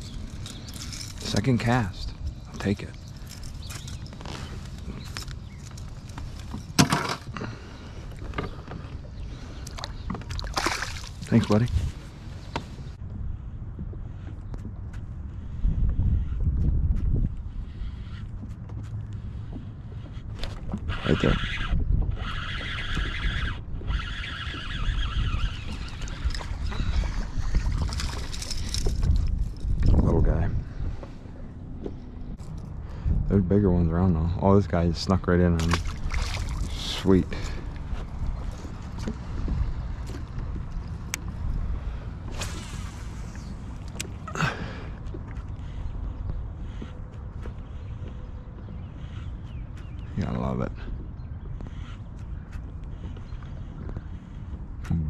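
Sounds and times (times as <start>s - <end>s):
water splashes: 9.6s - 11.7s, 35.6s - 37.5s
wind on microphone: 10.8s - 33.9s, 35.7s - 44.9s
fishing reel whirring: 20.9s - 29.0s.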